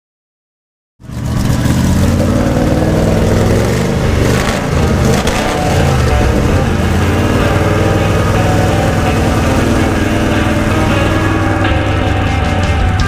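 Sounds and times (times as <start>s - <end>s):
car engine idling: 1.0s - 13.0s.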